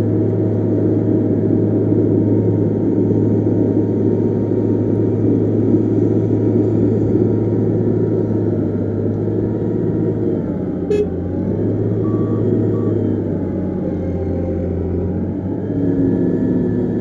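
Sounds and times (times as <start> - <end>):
diesel machine engine running: 0.0 - 17.0
short high beeps: 10.9 - 11.2, 12.0 - 13.1.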